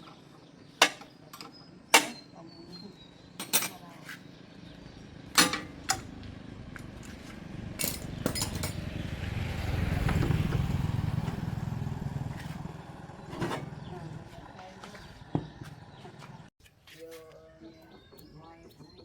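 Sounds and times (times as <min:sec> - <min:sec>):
metal tools clinking: 0:03.4 - 0:03.8, 0:05.4 - 0:06.1, 0:07.8 - 0:08.8
vehicle engine passing by: 0:04.6 - 0:16.5.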